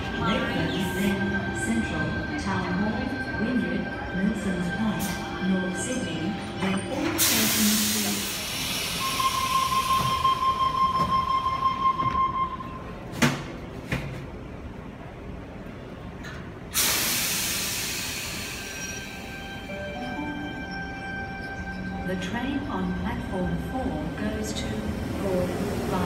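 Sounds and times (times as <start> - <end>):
compressed air hiss: 16.8 - 18.8.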